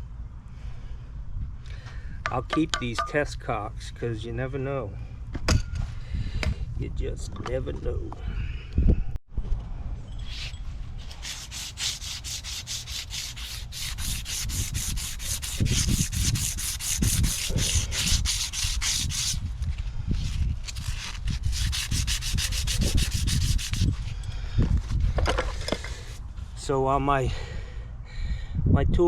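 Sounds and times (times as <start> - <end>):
hand scrubbing strokes: 10.3 - 19.4, 20.6 - 24.0.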